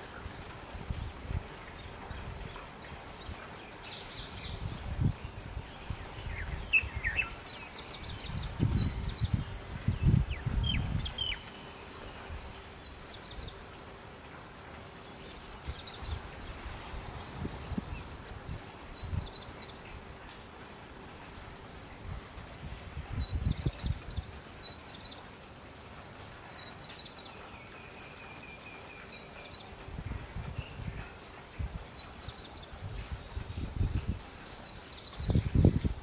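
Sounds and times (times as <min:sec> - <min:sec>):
songbird trilling: 0:05.7 - 0:11.7
bird chirps: 0:10.0 - 0:11.6.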